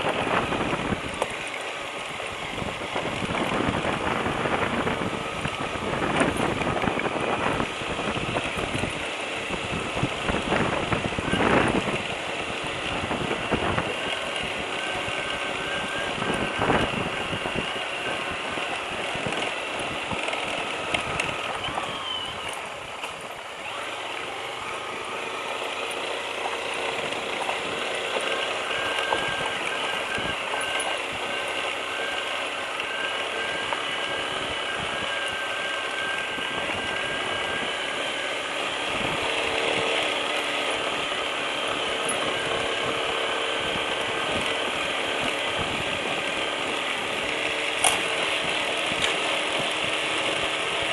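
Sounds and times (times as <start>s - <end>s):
single-cylinder engine running: 0.0s - 50.9s
mechanical rattle and clicking: 25.6s - 50.9s.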